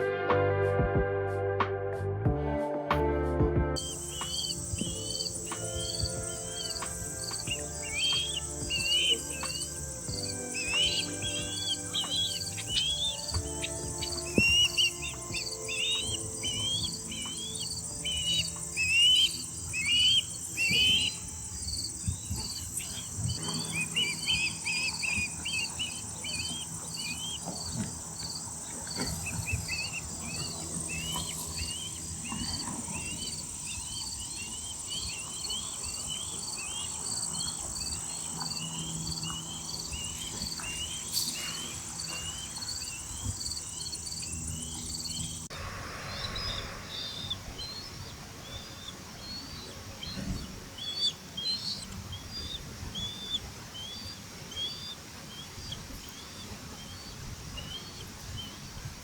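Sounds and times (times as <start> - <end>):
bird whistled chirps: 3.8 - 45.5, 46.1 - 58.6
crickets chirping: 3.8 - 59.0.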